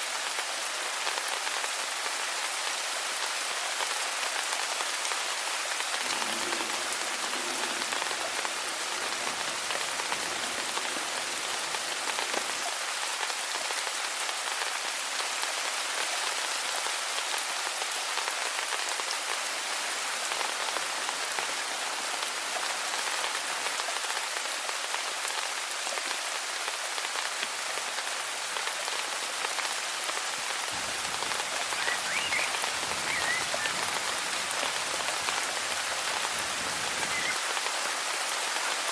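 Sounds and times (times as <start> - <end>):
rain pattering: 0.0 - 38.9
faint short chirps: 31.7 - 33.8.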